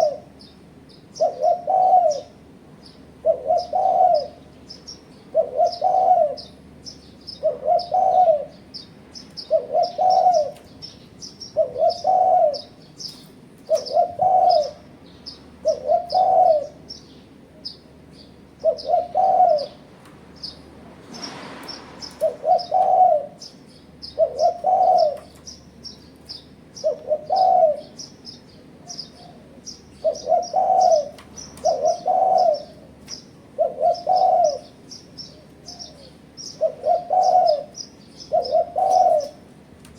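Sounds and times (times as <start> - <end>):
dove cooing: 0.0 - 0.5, 1.1 - 2.5, 3.2 - 4.5, 5.2 - 6.6, 7.3 - 8.6, 9.4 - 10.8, 11.4 - 15.0, 15.6 - 17.7, 18.6 - 19.9, 22.0 - 25.6, 26.8 - 39.6
small birds chirping: 0.0 - 39.9.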